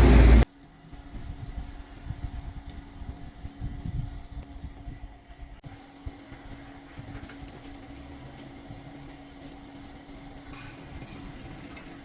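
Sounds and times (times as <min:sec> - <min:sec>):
low rumble: 0:00.0 - 0:00.4
steady mechanical hum: 0:00.0 - 0:12.0.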